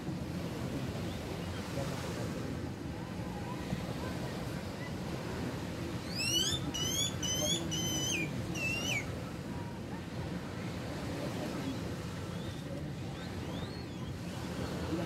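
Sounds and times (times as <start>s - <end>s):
gentle surf: 0.0s - 15.0s
bird whistled calls: 6.0s - 9.1s, 13.2s - 14.2s.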